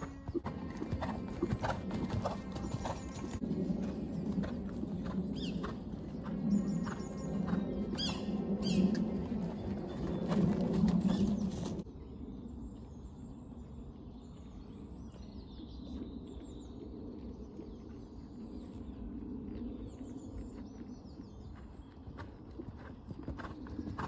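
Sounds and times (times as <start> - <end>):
steady low outdoor background: 0.0 - 24.0
small birds chirping and singing: 4.8 - 19.1.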